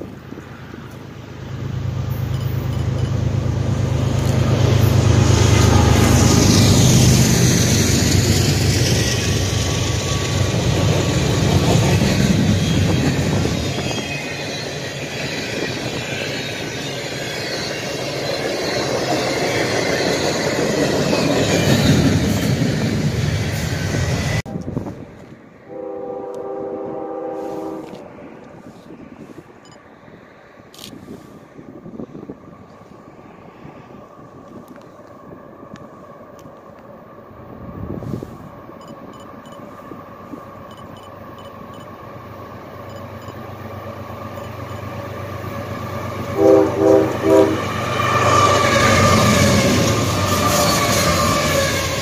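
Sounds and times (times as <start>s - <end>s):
freight train wheels rumbling: 0.0s - 29.7s, 30.8s - 52.0s
distant locomotive horn: 25.7s - 28.0s, 46.3s - 52.0s.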